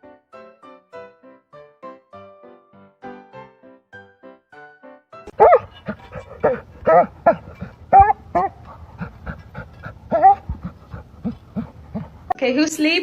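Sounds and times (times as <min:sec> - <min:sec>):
piano music: 0:00.0 - 0:08.8
dog barking: 0:05.3 - 0:08.6.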